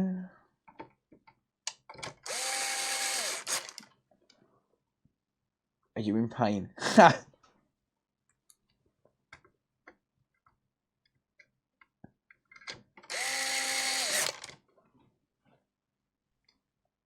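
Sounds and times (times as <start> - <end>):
small power tool motor whining: 2.3 - 3.8, 13.1 - 14.5.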